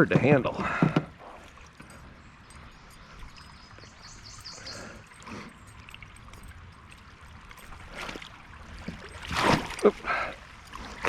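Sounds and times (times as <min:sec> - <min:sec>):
water trickling and splashing: 0:00.0 - 0:11.0
faint high chirps: 0:02.2 - 0:05.2.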